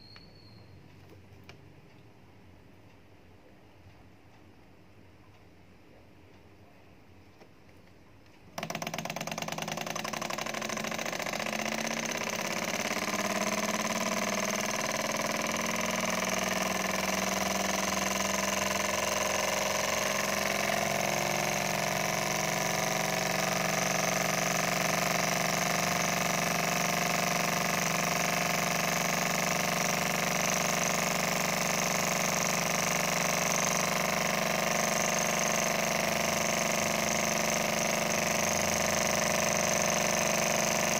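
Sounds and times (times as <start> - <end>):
small stirling engine running: 8.6 - 40.9.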